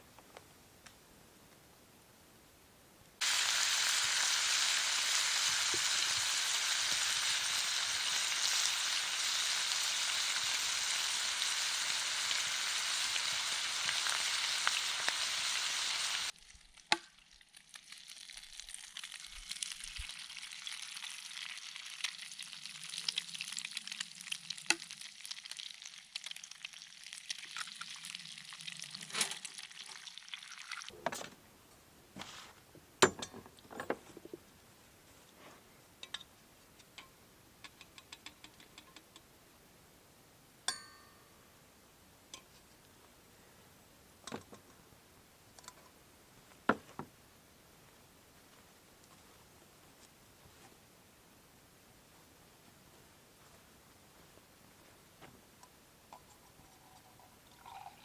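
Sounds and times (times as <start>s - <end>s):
food sizzling in a frying pan: 3.2s - 30.9s.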